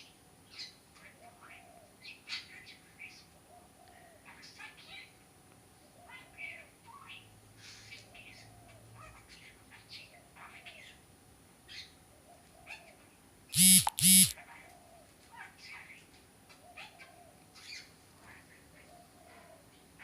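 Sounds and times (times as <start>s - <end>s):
loud tones: 13.6s - 14.4s.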